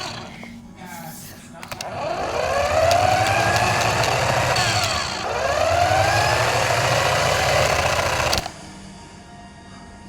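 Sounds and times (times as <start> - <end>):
toy car electric motor whining: 0.0 - 0.6, 1.6 - 8.6.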